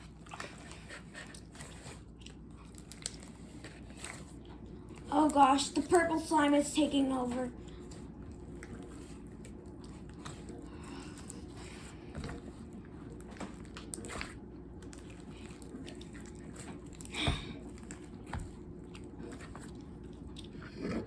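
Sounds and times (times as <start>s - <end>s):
hands squishing slime: 0.0s - 21.0s.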